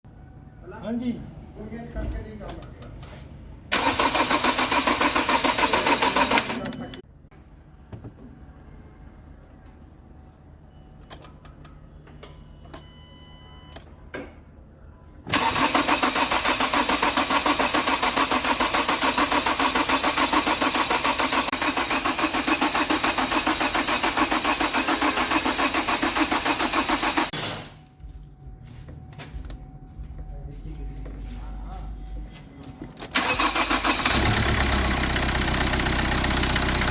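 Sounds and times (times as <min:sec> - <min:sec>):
faint beeps: 0:06.6 - 0:07.3, 0:08.4 - 0:14.1.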